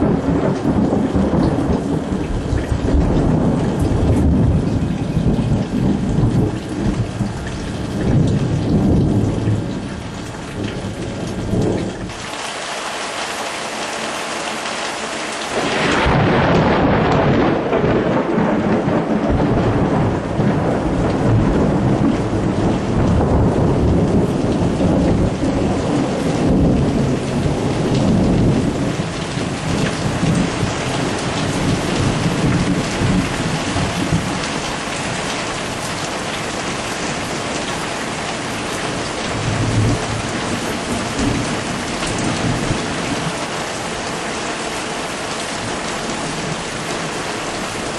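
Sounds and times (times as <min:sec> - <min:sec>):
loud thunder clap: 0:00.0 - 0:09.7, 0:15.5 - 0:34.6, 0:39.3 - 0:42.9
thunder rumbling: 0:00.0 - 0:12.2, 0:15.5 - 0:43.9
heavy rain pouring: 0:00.0 - 0:47.9.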